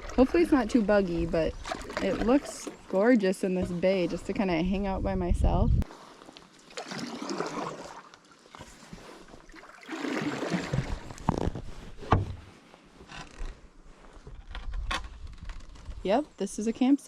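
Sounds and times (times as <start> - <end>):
water swishing off paddle: 0.0 - 4.4, 5.8 - 12.6.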